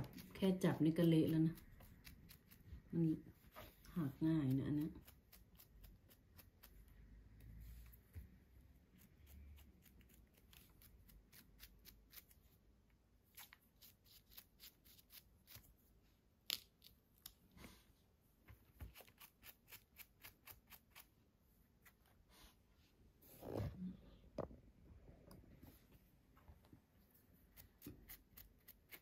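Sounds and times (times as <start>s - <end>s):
brush scratching mushrooms: 0.0s - 16.0s, 18.7s - 21.2s, 27.2s - 29.0s.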